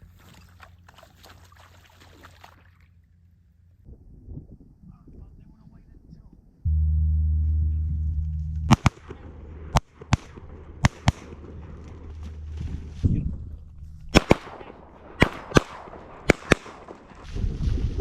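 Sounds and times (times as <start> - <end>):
low steady hum: 0.0 - 16.9
shotgun shots: 8.7 - 13.0, 14.1 - 17.2.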